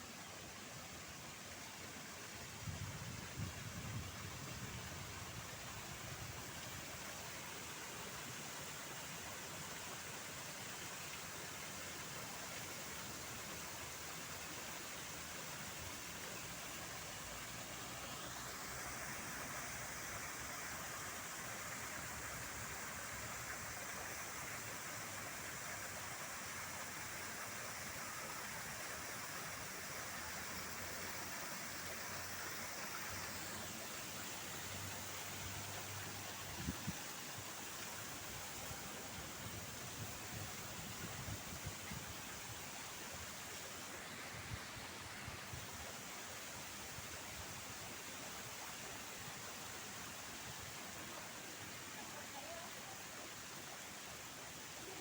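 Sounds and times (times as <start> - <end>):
outdoor background hiss: 0.0 - 55.0.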